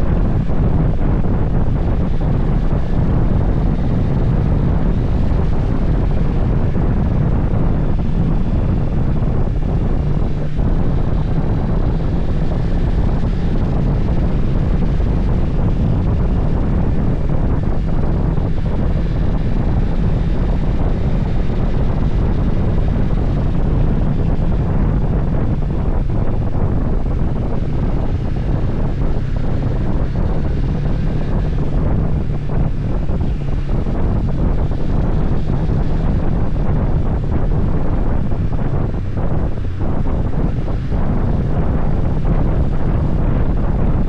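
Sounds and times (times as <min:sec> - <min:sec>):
low engine drone: 0:00.0 - 0:44.0
wind buffeting microphone: 0:00.0 - 0:44.0.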